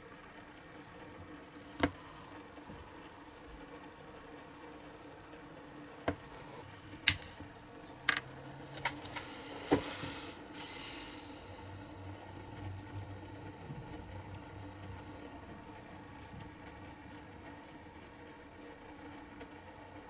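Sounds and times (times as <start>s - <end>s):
faint steady hum: 0.0s - 20.0s
short hiss: 9.1s - 11.6s.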